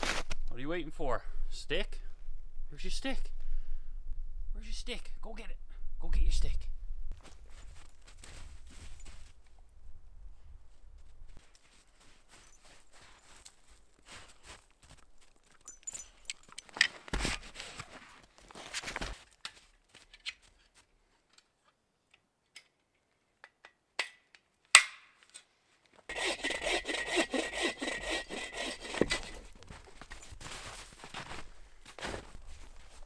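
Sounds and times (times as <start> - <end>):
hand saw cutting wood: 0.0 - 0.4, 26.1 - 29.9.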